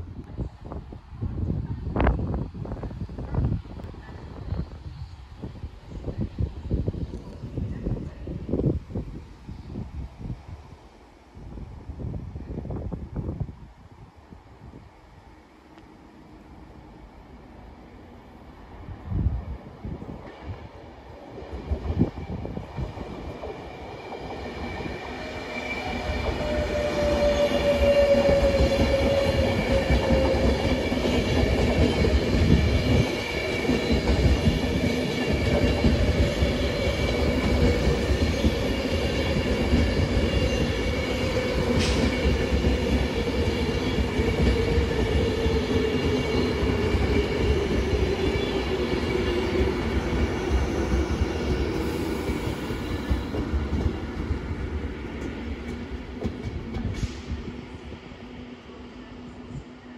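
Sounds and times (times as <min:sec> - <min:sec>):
train rumble: 0:14.6 - 0:59.8.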